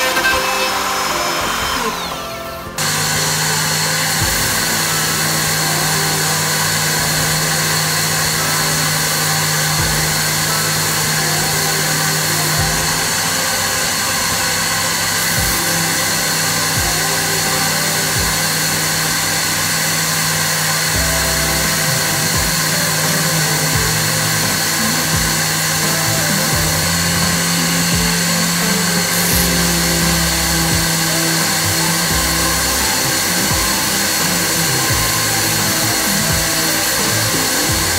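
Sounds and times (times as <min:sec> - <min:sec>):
low machine hum: 0:00.0 - 0:37.9
router spindle milling wood: 0:00.0 - 0:37.9.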